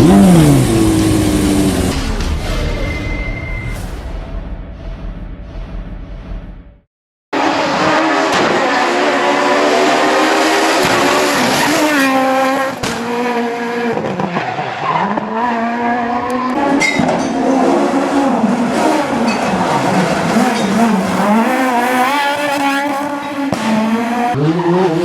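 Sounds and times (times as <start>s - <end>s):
rally car engine revving: 0.0s - 2.9s, 7.4s - 25.0s.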